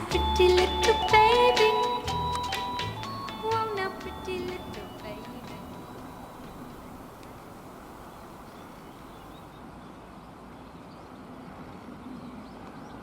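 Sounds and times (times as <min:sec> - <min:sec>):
small birds chirping: 0:00.0 - 0:09.6.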